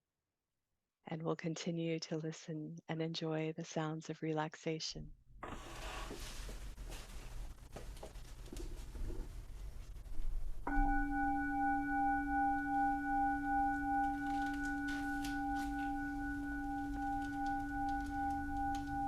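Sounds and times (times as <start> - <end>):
singing bowl ringing: 10.6 - 19.0.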